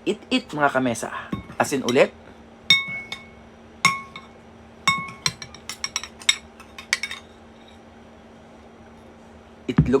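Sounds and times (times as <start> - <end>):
utensil clinking against dish: 2.7 - 7.8.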